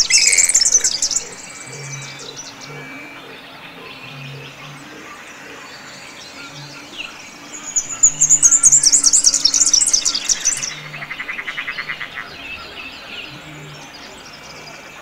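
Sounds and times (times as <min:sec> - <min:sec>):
fast high-pitched bird song: 0:00.0 - 0:03.1, 0:06.5 - 0:15.0
rapid low bird trill: 0:00.0 - 0:14.9
birds chirping: 0:00.0 - 0:15.0.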